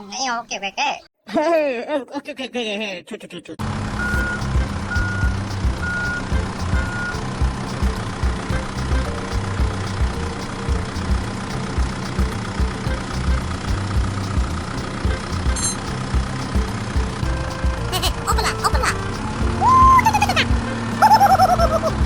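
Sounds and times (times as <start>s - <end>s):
engine chugging: 3.6s - 22.0s
reversing beeps: 4.0s - 7.2s.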